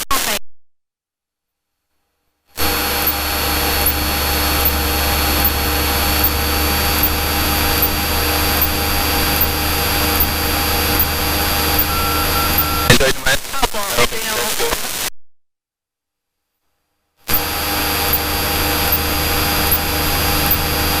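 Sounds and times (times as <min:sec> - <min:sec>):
propeller plane cabin drone: 0:02.6 - 0:12.9, 0:17.3 - 0:21.0.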